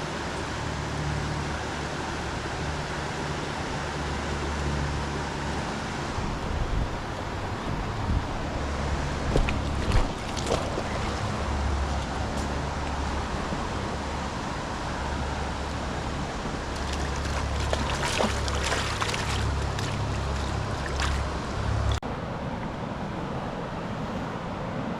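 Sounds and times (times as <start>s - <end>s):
stream water running: 0.0s - 24.6s
wind rumble on microphone: 3.4s - 22.0s
short ticks or splashes: 9.3s - 11.3s, 16.8s - 21.3s.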